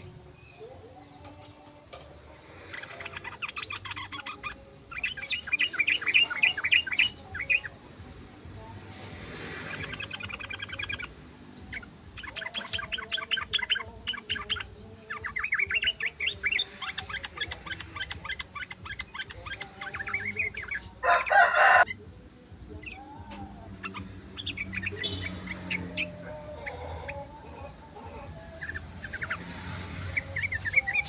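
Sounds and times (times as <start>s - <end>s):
bulbul chattering chirps: 2.0s - 23.1s, 23.7s - 27.4s.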